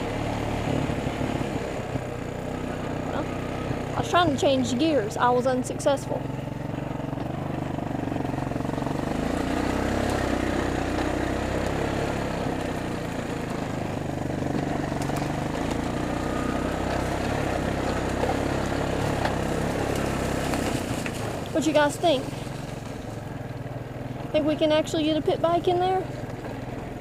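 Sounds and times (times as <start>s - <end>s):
atv engine running: 0.0s - 27.0s.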